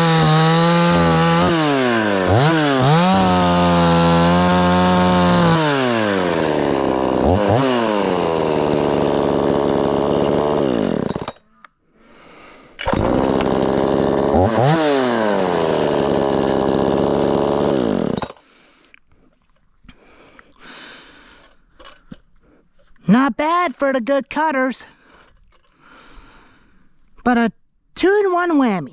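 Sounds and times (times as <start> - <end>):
chainsaw cutting at full throttle: 0.0 - 11.3, 12.8 - 18.3.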